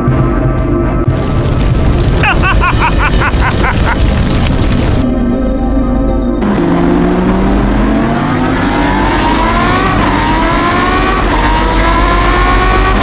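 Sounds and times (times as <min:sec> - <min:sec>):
car engine revving: 0:06.4 - 0:13.0.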